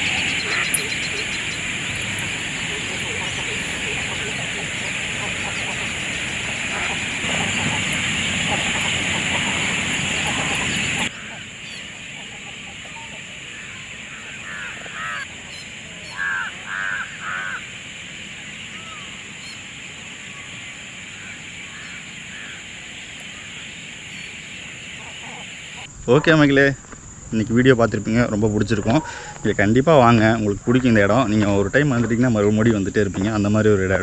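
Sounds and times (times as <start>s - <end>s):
birds calling: 0.0s - 25.9s
harsh bird calls: 0.0s - 25.9s
high-pitched insect drone: 0.0s - 25.9s
loud rushing noise: 0.0s - 25.9s.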